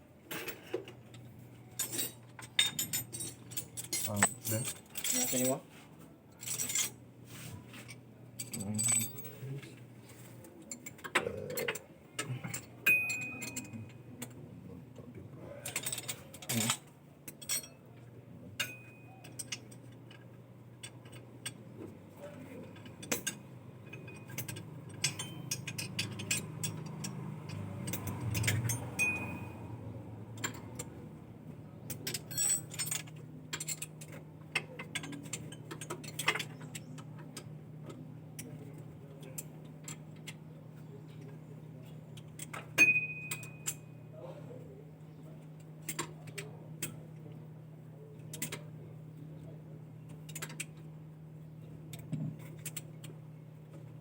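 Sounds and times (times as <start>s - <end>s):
steady low hum: 0.0s - 54.0s
metallic clinks and knocks: 0.3s - 5.6s, 7.8s - 9.4s, 10.7s - 14.0s, 18.6s - 20.2s, 22.6s - 29.8s, 31.9s - 37.5s, 42.2s - 44.0s.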